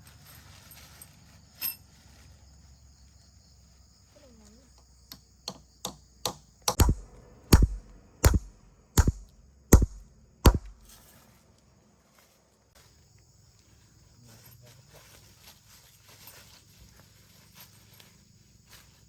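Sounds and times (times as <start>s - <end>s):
hand tool striking wood: 5.5s - 10.9s.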